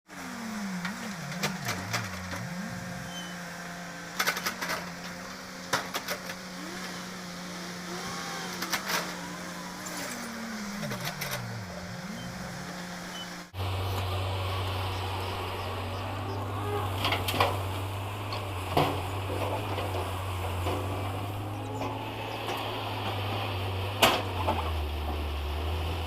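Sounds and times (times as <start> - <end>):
vehicle engine running: 0.1 - 26.0.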